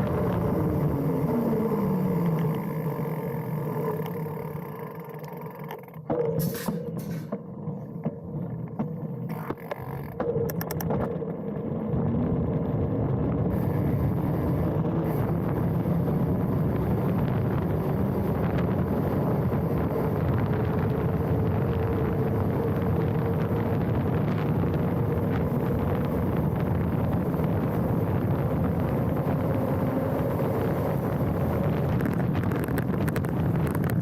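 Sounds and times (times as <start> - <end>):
bike tyres rolling on dirt: 0.0 - 6.1, 6.7 - 34.0
clicks: 5.2 - 11.3
wind rushing over camera: 6.1 - 34.0.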